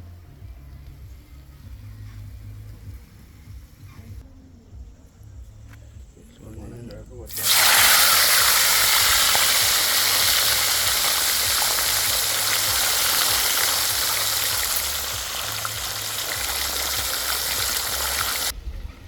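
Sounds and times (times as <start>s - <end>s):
fish sizzling in hot oil: 7.3s - 18.5s.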